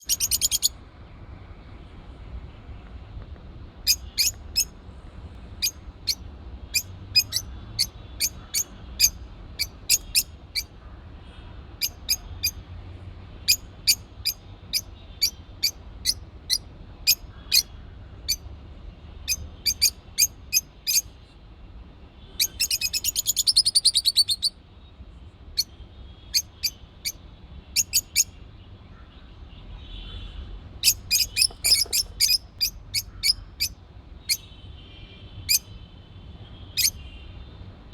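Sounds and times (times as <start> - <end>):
birds chirping and trilling: 0.0 - 0.8, 3.8 - 4.7, 5.6 - 10.8, 19.2 - 21.2, 22.4 - 24.6, 25.6 - 29.2, 30.8 - 34.5, 36.7 - 37.1.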